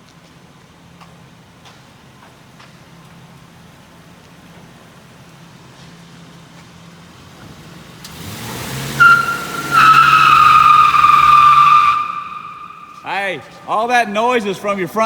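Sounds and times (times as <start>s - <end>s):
tyres squealing: 8.9s - 15.0s.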